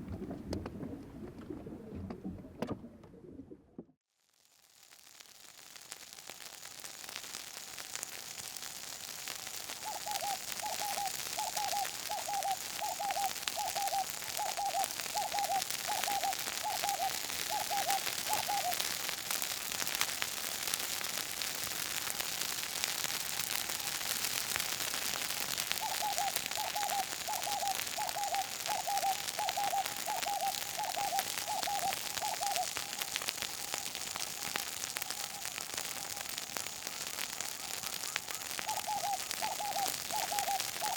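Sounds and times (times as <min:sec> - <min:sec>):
bush fire crackling: 0:04.2 - 0:40.9
bird hooting: 0:09.8 - 0:18.8, 0:25.8 - 0:33.0, 0:38.1 - 0:40.9.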